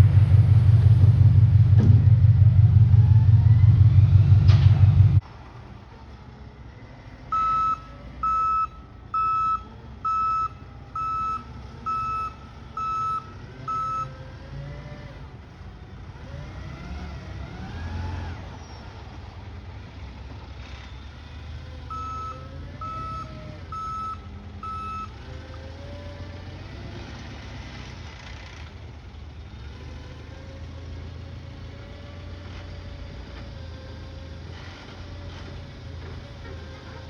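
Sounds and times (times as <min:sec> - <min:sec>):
truck engine running: 0:00.0 - 0:37.0
reversing alarm beeping: 0:07.3 - 0:14.2, 0:21.9 - 0:25.2.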